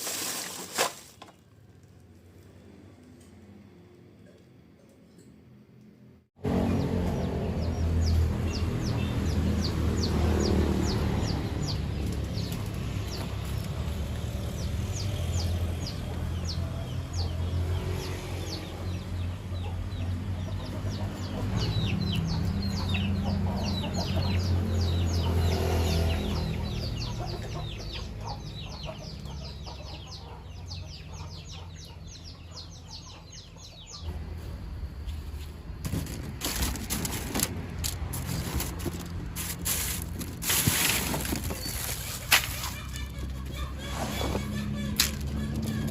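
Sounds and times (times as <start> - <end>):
birds chirping: 6.5 - 34.2, 40.0 - 45.9.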